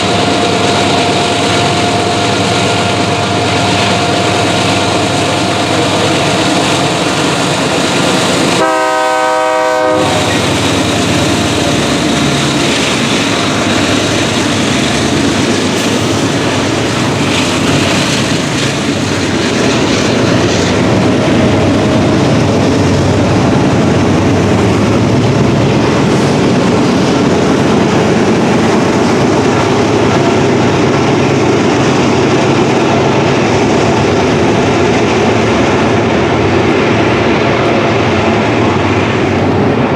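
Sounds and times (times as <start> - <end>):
train wheels rumbling on rails: 0.0 - 39.9
locomotive horn: 8.5 - 10.5.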